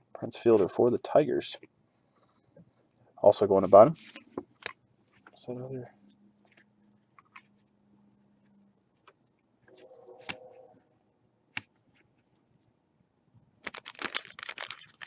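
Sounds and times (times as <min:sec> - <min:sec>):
packaging rustling and crinkling: 0:13.6 - 0:15.0.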